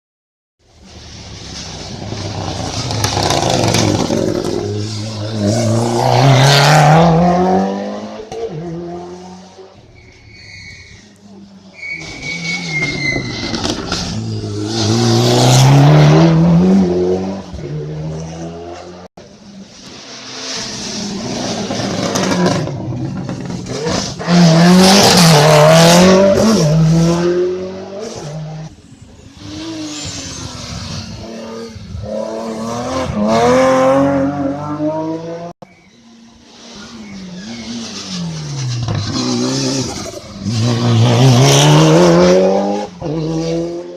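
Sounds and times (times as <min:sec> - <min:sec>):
race cars accelerating hard: 0:01.8 - 0:09.8, 0:29.4 - 0:35.6, 0:36.5 - 0:43.9.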